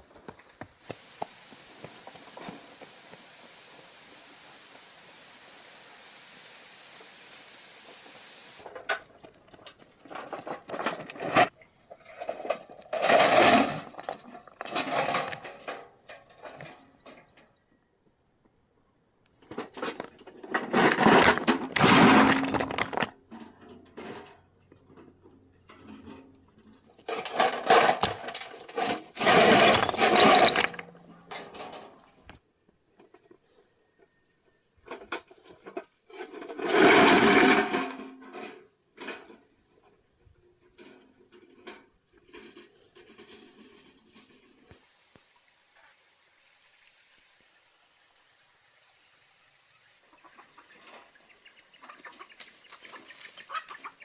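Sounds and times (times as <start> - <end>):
steady hiss: 0.1 - 8.8
scraping and crunching stone: 19.7 - 23.3, 27.0 - 31.4.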